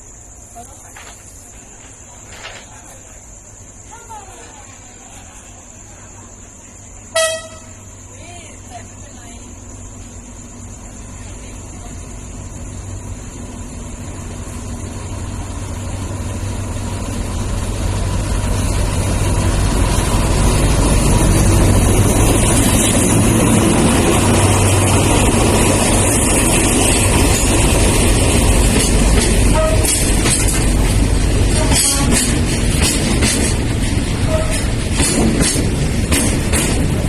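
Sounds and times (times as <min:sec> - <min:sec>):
diesel locomotive engine rumble: 0:00.0 - 0:37.0.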